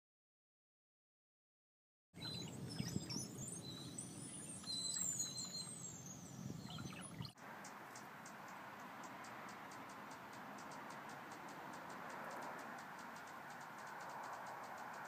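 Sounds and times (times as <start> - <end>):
birds whistling and chirping: 2.2 - 15.0
faint ticks: 7.4 - 15.0.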